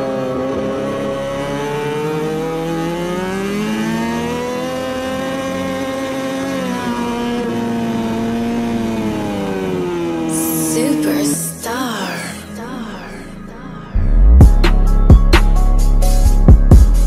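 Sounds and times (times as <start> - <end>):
racing motorcycle engine high revs: 0.0 - 10.3.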